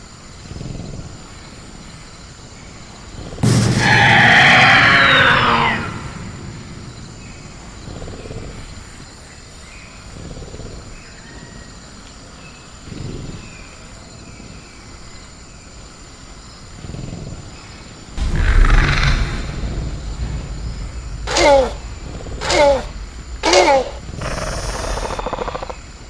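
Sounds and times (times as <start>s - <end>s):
dinosaur screech: 3.4s - 7.2s, 18.3s - 20.0s
soft low rumbles: 3.4s - 9.8s, 18.2s - 26.0s
high insect drone: 3.4s - 26.0s.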